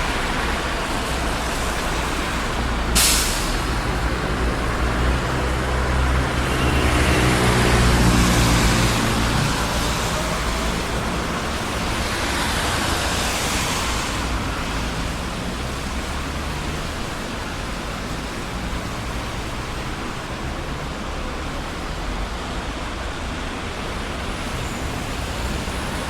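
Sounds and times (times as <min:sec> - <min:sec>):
tyre hiss of passing vehicle: 0:00.0 - 0:19.6
passing cars: 0:00.0 - 0:26.0
vehicle engine drone: 0:00.0 - 0:26.0.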